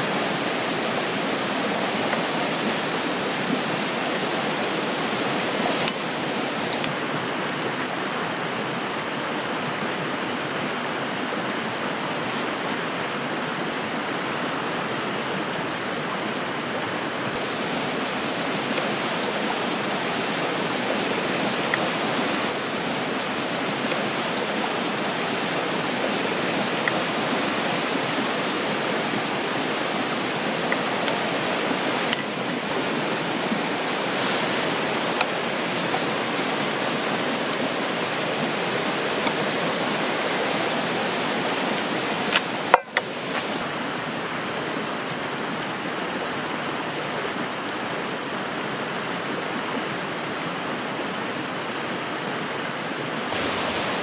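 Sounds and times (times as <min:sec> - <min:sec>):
river rushing: 0:00.0 - 0:54.0
faint clicks: 0:05.8 - 0:06.9, 0:32.0 - 0:32.3.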